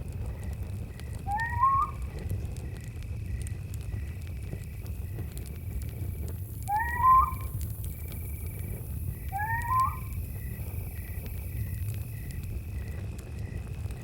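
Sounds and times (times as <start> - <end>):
campfire crackling: 0.0 - 14.0
crickets chirping: 0.2 - 13.8
owl rising call: 1.3 - 2.1, 6.7 - 7.6, 9.3 - 10.2.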